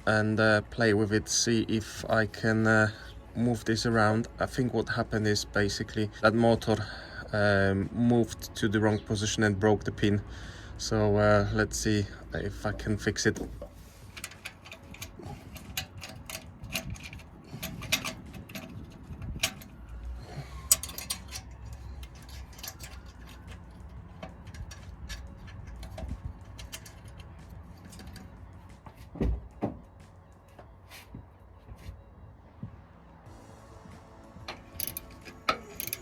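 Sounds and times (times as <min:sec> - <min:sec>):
hands clicking on metal parts: 0:14.1 - 0:19.8, 0:20.6 - 0:28.4, 0:34.5 - 0:36.0.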